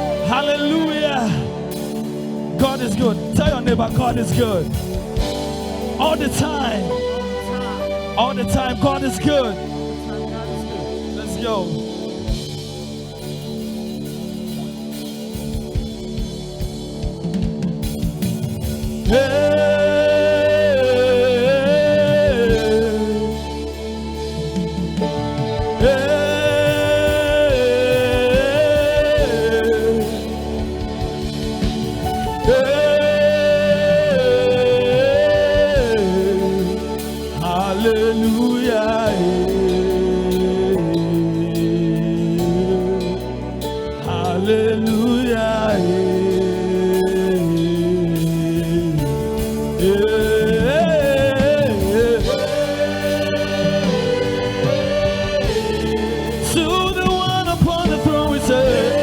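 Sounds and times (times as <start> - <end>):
band accompaniment: 0.0 - 59.0
steady bass: 0.0 - 59.0
voices singing held notes: 18.8 - 43.2, 44.0 - 59.0.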